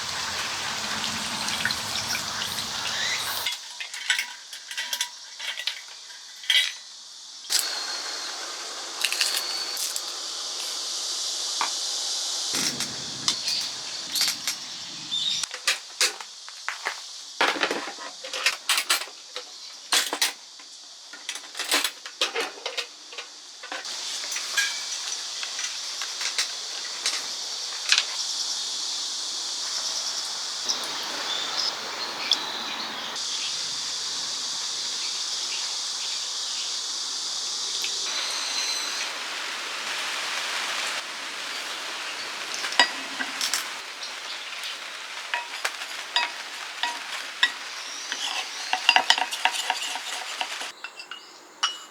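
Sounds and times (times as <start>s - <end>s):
food sizzling in hot pan: 0.0s - 3.8s, 7.0s - 15.5s, 23.8s - 31.6s, 33.1s - 50.7s
metal utensils clinking on pan: 3.4s - 6.8s, 24.3s - 25.8s, 42.6s - 43.8s, 45.3s - 51.9s.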